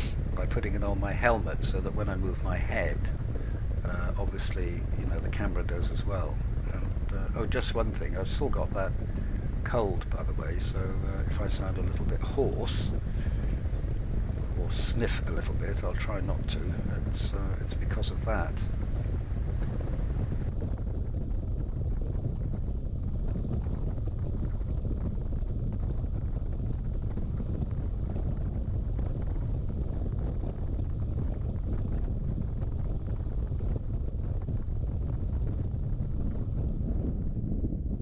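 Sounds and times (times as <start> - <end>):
motorcycle engine rumble: 0.0 - 20.5
road noise: 0.0 - 20.5
wind buffeting microphone: 0.0 - 20.5, 22.2 - 38.0.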